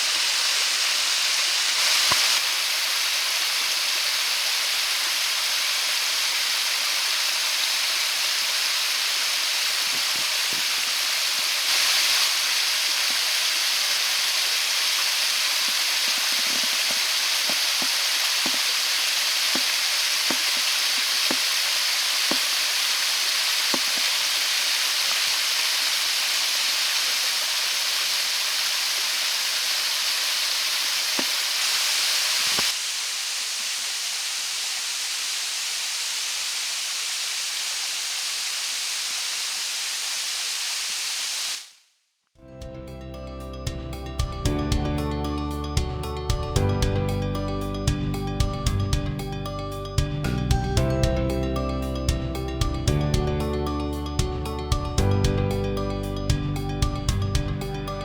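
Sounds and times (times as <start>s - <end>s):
waterfall rushing: 0.0s - 41.6s.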